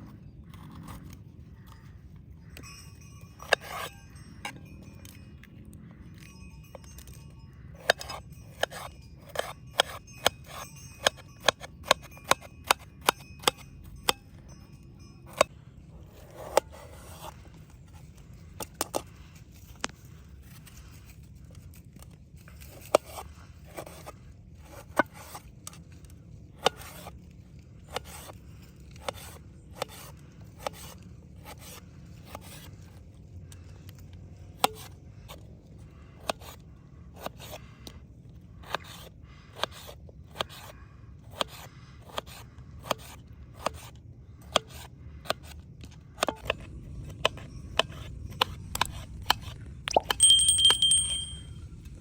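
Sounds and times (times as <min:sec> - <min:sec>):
knife cutting food with scraping: 0:38.6 - 0:45.6.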